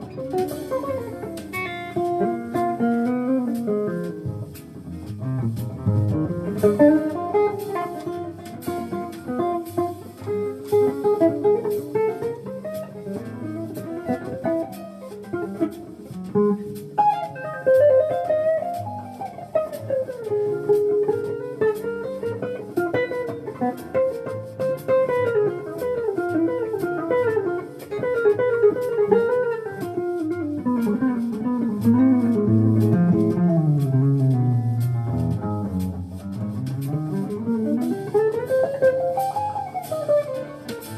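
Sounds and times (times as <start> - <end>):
jazz guitar melody: 0.0 - 40.9
bass line: 31.7 - 38.4.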